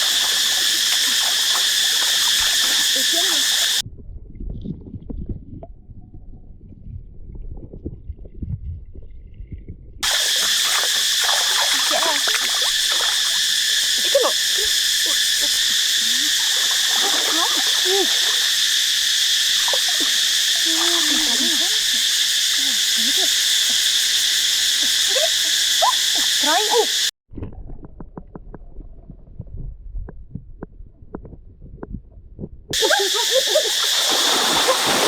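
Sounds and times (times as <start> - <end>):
insect chorus buzzing: 0.0 - 3.8, 10.0 - 27.1, 32.8 - 35.0.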